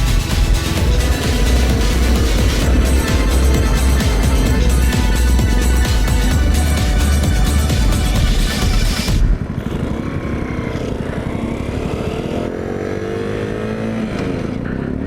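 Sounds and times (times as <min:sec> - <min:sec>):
background music: 0:00.0 - 0:09.5
small motorbike engine accelerating: 0:00.0 - 0:15.0.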